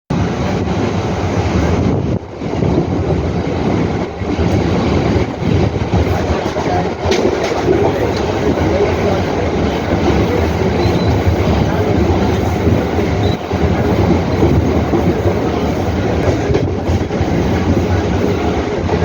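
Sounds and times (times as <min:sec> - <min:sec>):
train wheels rumbling on rails: 0:00.1 - 0:19.0.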